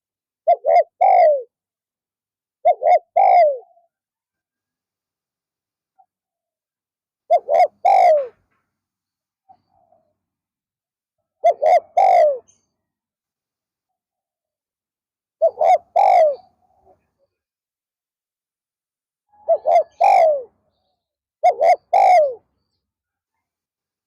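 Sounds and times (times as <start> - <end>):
dove cooing: 0.4 - 1.6, 2.6 - 3.9, 7.3 - 8.4, 11.4 - 12.6, 15.4 - 17.1, 19.3 - 20.6, 21.4 - 22.5.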